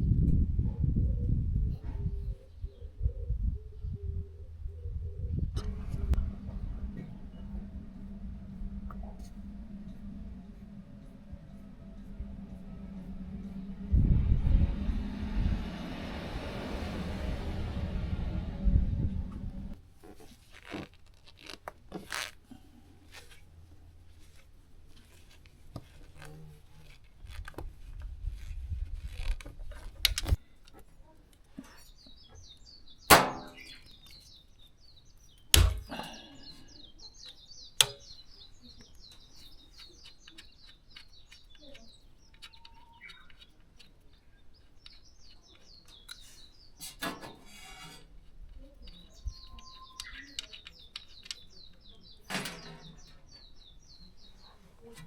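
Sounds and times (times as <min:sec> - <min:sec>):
low rumble: 0:03.0 - 0:19.8
small birds chirping: 0:30.4 - 0:55.0.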